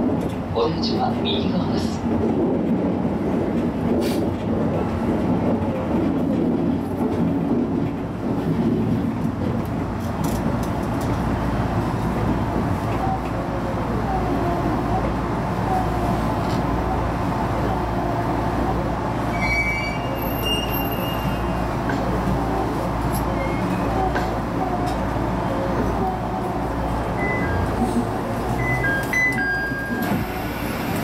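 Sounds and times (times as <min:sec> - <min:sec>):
train wheels rumbling on track: 0:00.0 - 0:31.0.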